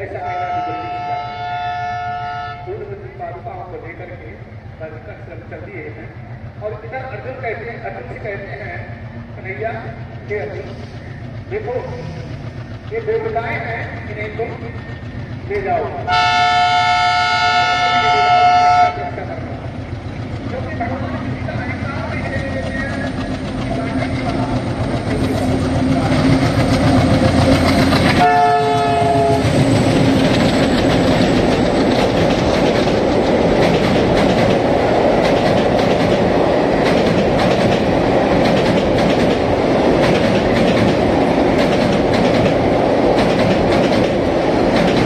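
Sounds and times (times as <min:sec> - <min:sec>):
train rumbling over steel bridge: 0:00.0 - 0:45.0
locomotive horn: 0:00.2 - 0:02.7, 0:16.1 - 0:19.2, 0:28.1 - 0:29.6
wheels clacking over rail joints: 0:18.1 - 0:45.0.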